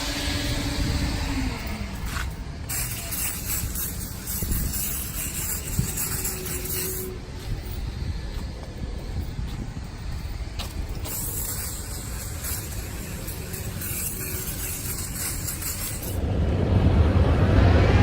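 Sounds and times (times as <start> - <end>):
spray hiss: 0.0 - 9.7, 10.4 - 16.2
low rumble: 0.0 - 18.0.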